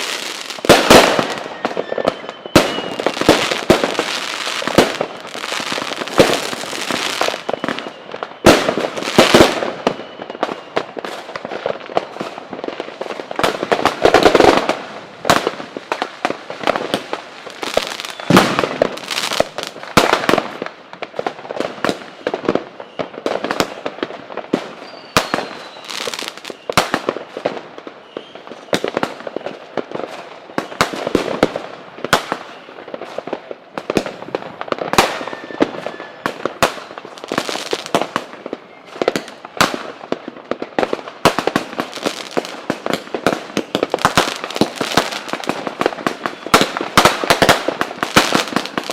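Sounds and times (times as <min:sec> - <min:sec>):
faint firework whistles: 0:00.0 - 0:05.0, 0:05.6 - 0:11.2, 0:17.7 - 0:19.5, 0:22.1 - 0:23.9, 0:24.6 - 0:27.0, 0:27.9 - 0:29.6, 0:32.2 - 0:32.9, 0:34.5 - 0:37.0, 0:37.7 - 0:39.5, 0:46.1 - 0:47.2
fireworks bangs and crackling: 0:00.0 - 0:48.9.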